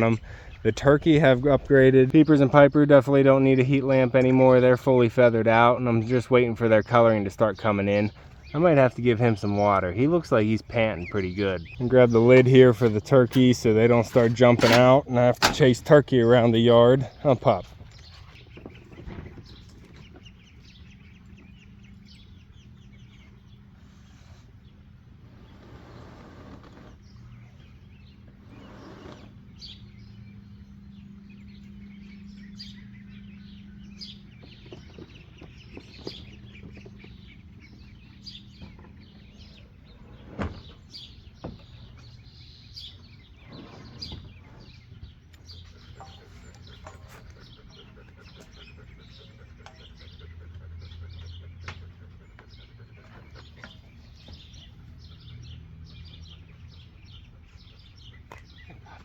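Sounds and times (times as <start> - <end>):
young birds chirping: 0.0 - 59.0.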